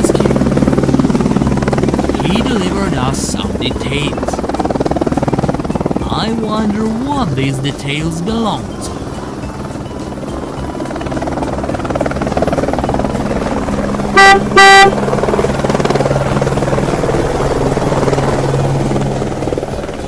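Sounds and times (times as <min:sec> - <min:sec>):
helicopter rotor chopping: 0:00.0 - 0:20.0
car horn honking: 0:14.2 - 0:15.0.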